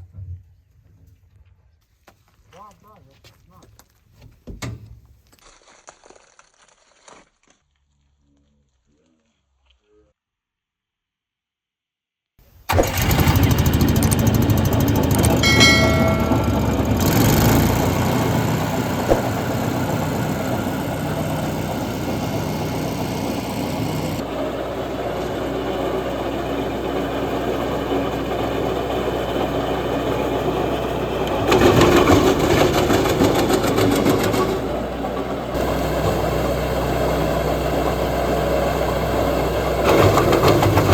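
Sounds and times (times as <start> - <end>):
wood chipper running: 12.7 - 40.9.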